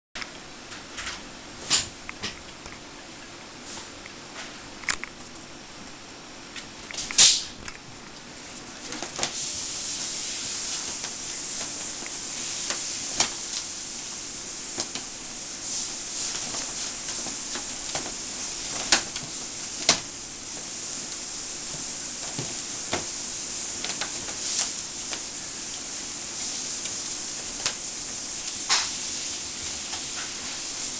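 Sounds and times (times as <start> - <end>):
fabric tunnel rustling and crackling: 8.6 - 30.9.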